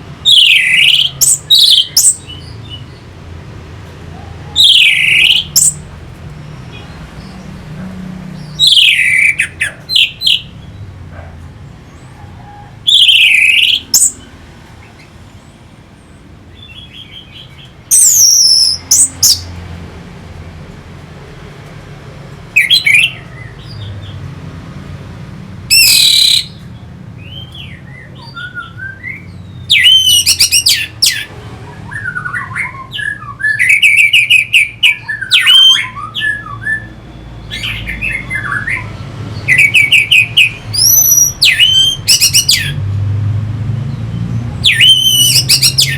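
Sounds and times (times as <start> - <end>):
thrush whistled song: 0.3 - 2.5, 4.5 - 5.8, 8.4 - 10.6, 12.5 - 14.3, 16.6 - 19.5, 22.6 - 23.9, 25.7 - 26.6, 27.2 - 42.8, 44.6 - 45.9.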